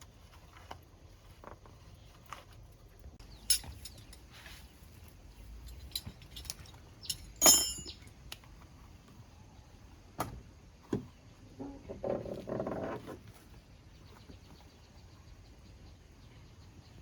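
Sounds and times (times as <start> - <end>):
sharp metallic clink: 3.3 - 4.2, 5.7 - 8.1.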